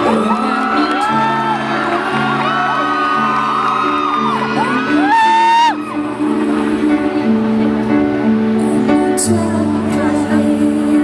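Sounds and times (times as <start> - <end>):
audience whooping and calling out: 0.0 - 6.8
live band playing slow song: 0.0 - 11.0.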